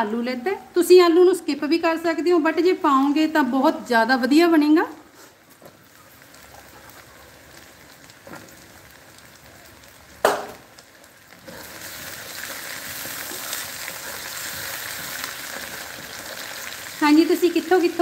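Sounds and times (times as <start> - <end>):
vegetables sizzling in oil: 0.0 - 18.0
sharp knock: 10.2 - 10.6.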